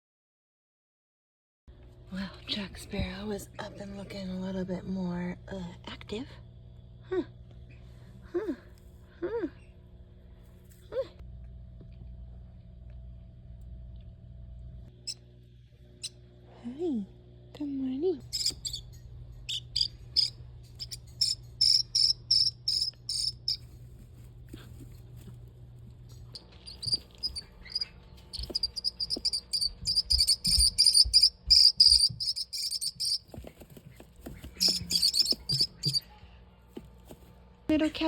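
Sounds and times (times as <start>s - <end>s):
baby bird cheeping: 18.2s - 23.6s, 26.4s - 33.4s, 34.4s - 36.1s.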